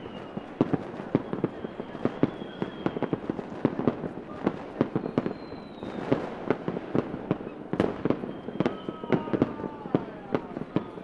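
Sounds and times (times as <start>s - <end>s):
faint high whistle: 0.0s - 3.4s, 4.9s - 6.2s, 7.4s - 11.0s
fireworks bangs and pops: 0.0s - 11.0s
fireworks crackle: 0.0s - 11.0s.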